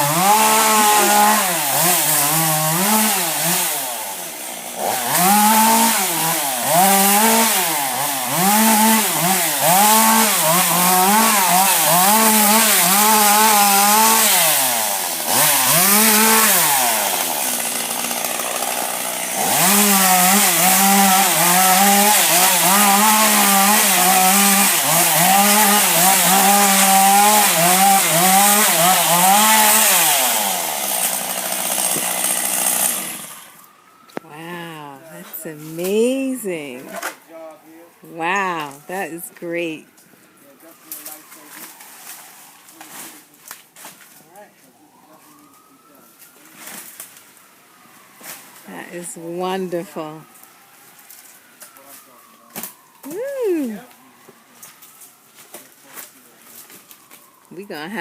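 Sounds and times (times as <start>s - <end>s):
chainsaw cutting wood: 0.0s - 34.2s, 35.6s - 37.1s.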